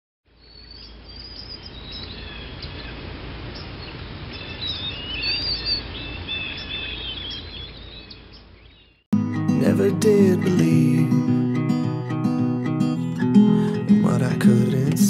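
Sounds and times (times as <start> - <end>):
birds chirping and singing: 0.3 - 3.0, 3.6 - 9.0.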